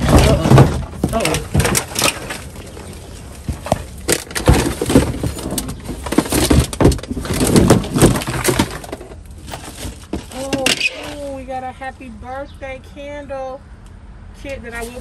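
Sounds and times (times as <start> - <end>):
knocks and clatter: 0.0 - 2.7, 3.4 - 10.9
rustling of boxes and bags: 0.0 - 11.4.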